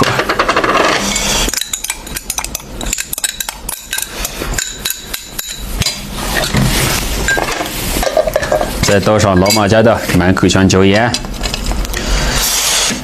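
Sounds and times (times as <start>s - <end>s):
utensils clinking against bowl: 0.0s - 10.3s.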